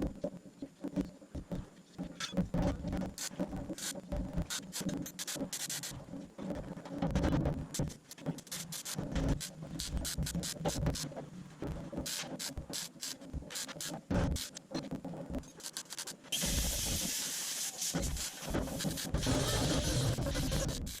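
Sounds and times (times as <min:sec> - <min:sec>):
mechanical clicking and clattering: 0:01.0 - 0:17.2
steady hiss: 0:03.1 - 0:06.2, 0:07.7 - 0:14.7, 0:15.5 - 0:20.3.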